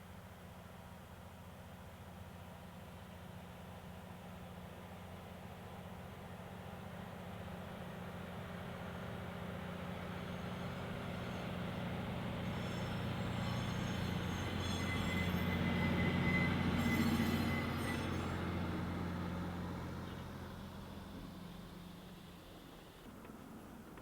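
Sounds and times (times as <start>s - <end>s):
diesel locomotive engine hum: 4.2s - 24.0s
wheel squeal on rails: 8.8s - 24.0s
train wagons running: 9.1s - 22.1s.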